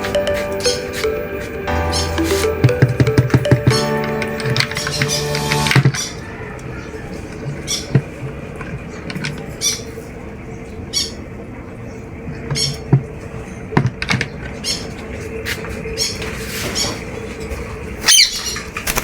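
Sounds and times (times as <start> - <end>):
birds squawking: 0.0 - 2.6, 3.7 - 8.0, 18.0 - 19.0.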